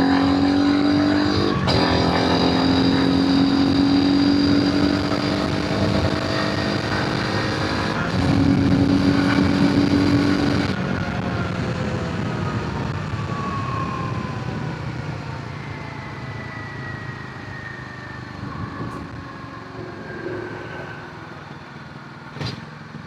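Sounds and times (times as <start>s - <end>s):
motorcycle engine and exhaust running: 0.0s - 23.0s.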